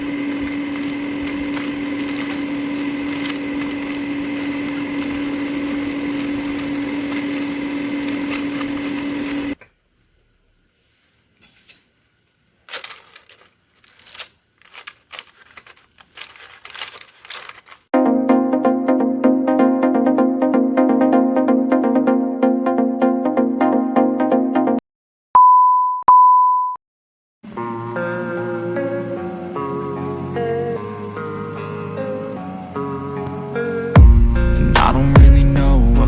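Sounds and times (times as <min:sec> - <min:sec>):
air fryer humming: 0:00.0 - 0:10.7, 0:27.5 - 0:34.1
music: 0:18.0 - 0:24.8, 0:27.5 - 0:36.0.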